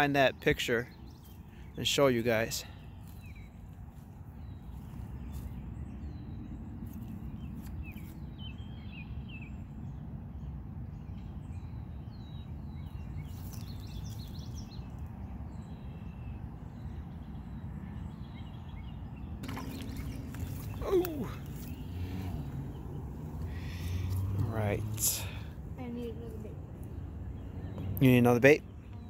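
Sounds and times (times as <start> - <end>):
small birds chirping: 0.0 - 29.0
steady low rumble: 19.4 - 27.8.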